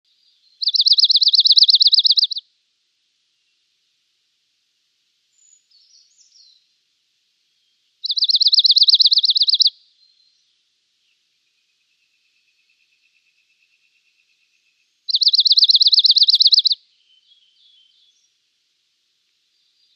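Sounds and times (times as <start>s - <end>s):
bird trilling: 0.6s - 2.4s, 8.0s - 9.7s, 15.1s - 16.8s
faint soft bird notes: 5.2s - 19.9s.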